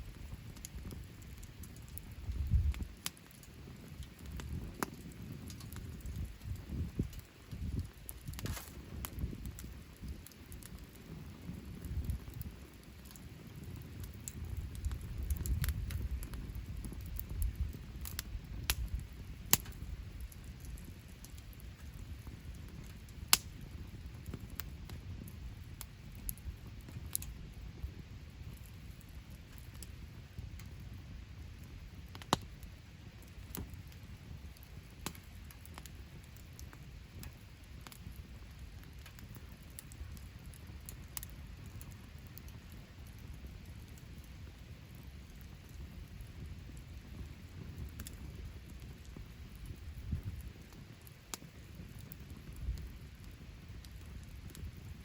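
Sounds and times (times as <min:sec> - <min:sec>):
low steady rumble: 0:00.0 - 0:03.1
campfire crackling and popping: 0:00.0 - 0:55.0.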